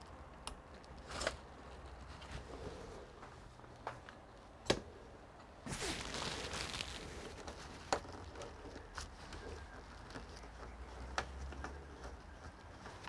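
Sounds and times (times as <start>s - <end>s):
rustling scrape: 5.7s - 8.5s.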